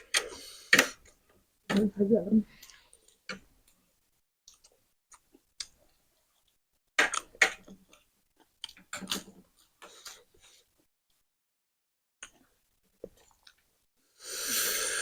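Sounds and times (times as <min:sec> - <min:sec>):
noodles being chewed: 0:04.5 - 0:10.6, 0:12.2 - 0:13.7.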